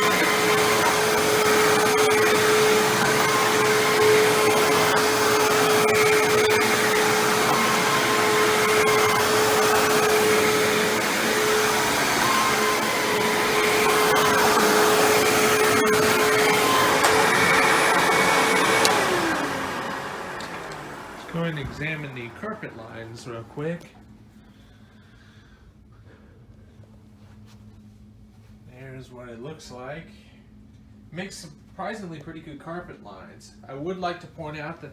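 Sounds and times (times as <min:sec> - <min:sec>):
vacuum cleaner running on carpet: 0:00.0 - 0:23.9.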